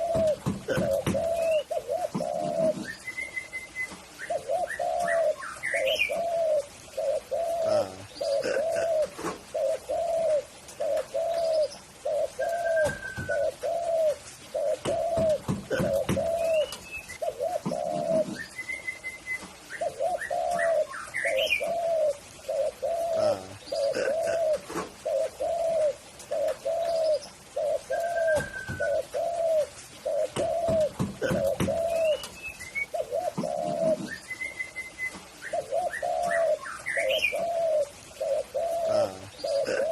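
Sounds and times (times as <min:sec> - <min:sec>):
dove cooing: 0:00.0 - 0:39.9
higher bird chirps: 0:11.1 - 0:24.6, 0:26.4 - 0:39.9.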